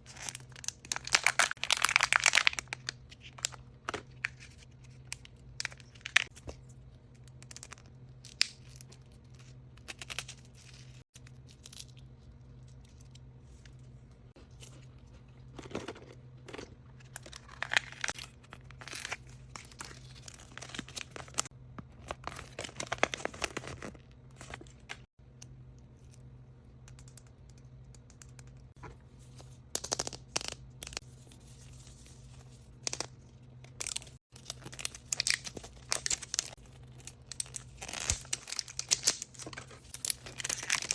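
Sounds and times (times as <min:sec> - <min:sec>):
wrapping crinkling and tearing: 0:00.0 - 0:03.5, 0:33.8 - 0:40.9
low steady hum: 0:00.0 - 0:40.9.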